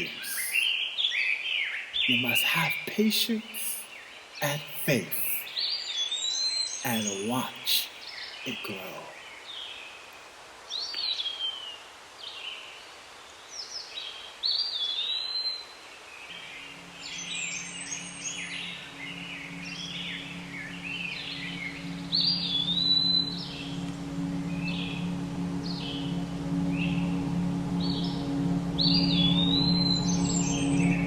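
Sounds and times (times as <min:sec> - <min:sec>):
low musical drone: 0:00.0 - 0:00.7, 0:16.3 - 0:31.0.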